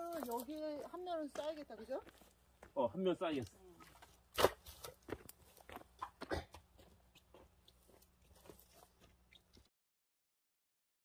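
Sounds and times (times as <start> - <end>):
irregular knocks and crunching: 3.4 - 9.7.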